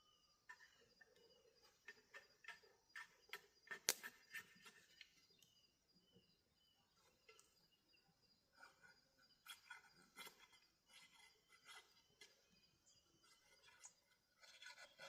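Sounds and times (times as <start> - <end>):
bird chirping: 0.0 - 10.6.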